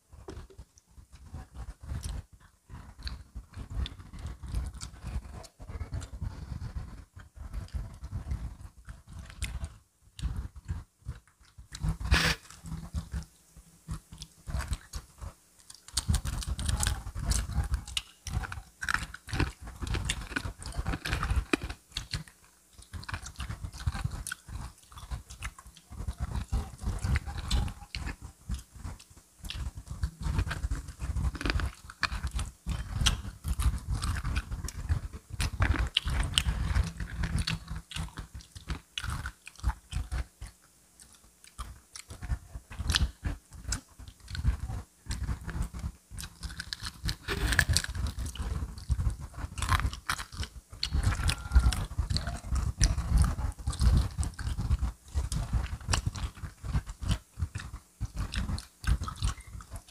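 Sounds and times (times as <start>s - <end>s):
wet chewing: 0.2s - 59.9s
crunching fried chicken: 13.9s - 59.9s.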